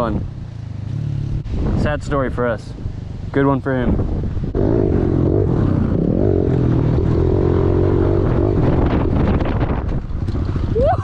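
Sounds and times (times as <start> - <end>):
pit bike engine revving: 4.4 - 10.7.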